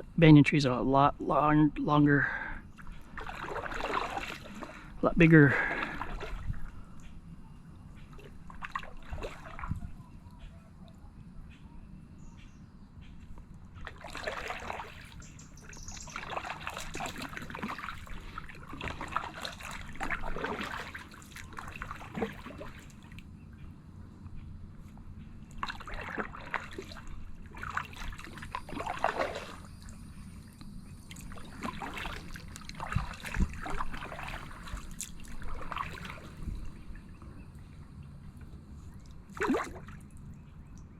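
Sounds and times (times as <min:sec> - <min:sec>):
paddle strokes splashing water: 0:02.7 - 0:07.2, 0:07.8 - 0:10.1, 0:13.0 - 0:23.3, 0:24.8 - 0:40.3.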